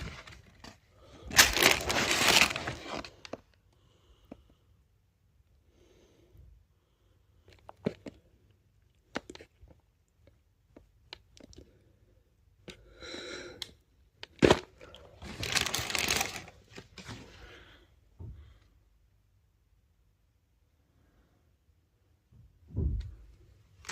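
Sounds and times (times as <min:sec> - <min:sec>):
paper or cardboard rustling and tearing: 0:00.0 - 0:03.3, 0:15.2 - 0:17.3
packaging clicks and crinkles: 0:00.0 - 0:03.6, 0:14.2 - 0:17.1.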